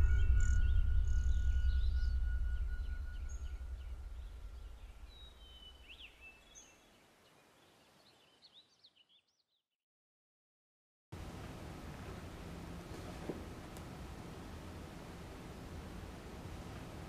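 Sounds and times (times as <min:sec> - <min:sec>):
low rumble: 0:00.0 - 0:06.2
small birds chirping: 0:00.0 - 0:09.6.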